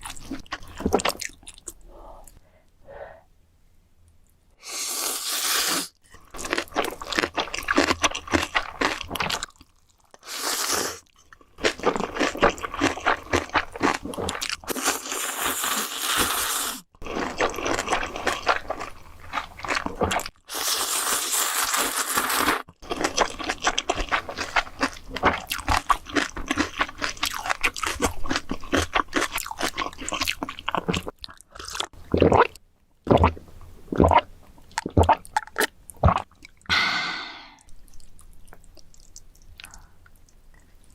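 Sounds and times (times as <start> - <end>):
crunchy chewing of food: 0.0 - 2.4, 6.1 - 32.6.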